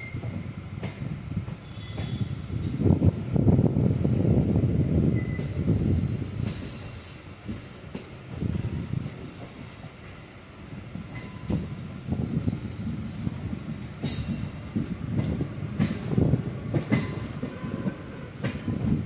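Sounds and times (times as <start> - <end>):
train wheels rumbling on rails: 0.0 - 19.0
wheels clacking over rail joints: 14.0 - 19.0.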